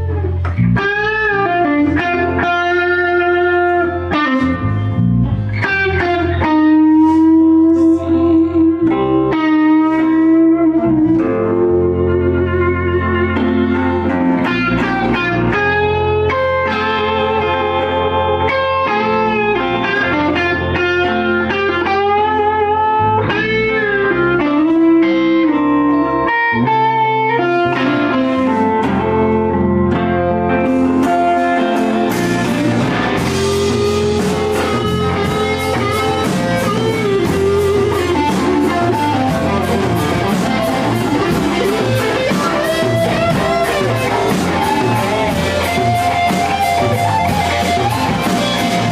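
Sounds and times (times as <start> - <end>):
bass guitar: 0.0 - 48.9
electric guitar lead line: 0.0 - 48.9
fast cymbal beat: 32.1 - 48.9.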